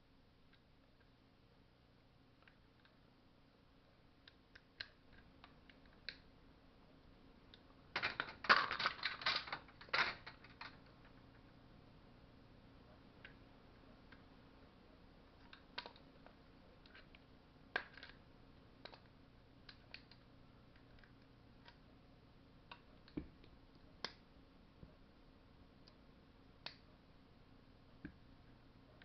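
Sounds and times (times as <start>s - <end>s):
faint steady hum: 0.0s - 29.0s
small metal parts and tools clicking: 8.0s - 11.2s, 15.4s - 18.2s, 19.7s - 21.8s.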